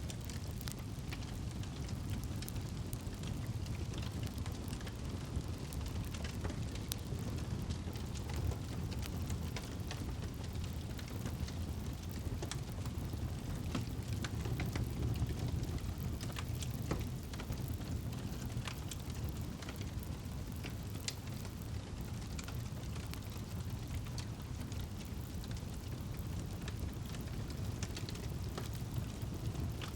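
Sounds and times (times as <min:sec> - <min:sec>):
campfire burning and crackling: 0:00.0 - 0:29.9.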